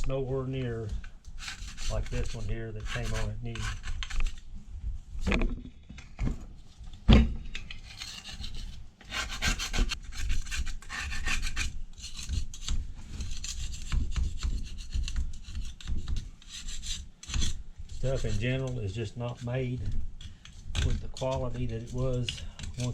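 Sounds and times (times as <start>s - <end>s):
hand scraping metal housing: 0.7s - 4.4s.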